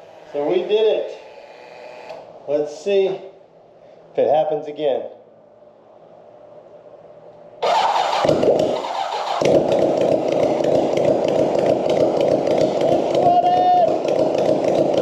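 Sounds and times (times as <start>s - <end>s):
motorcycle engine starting and running: 7.6s - 15.0s.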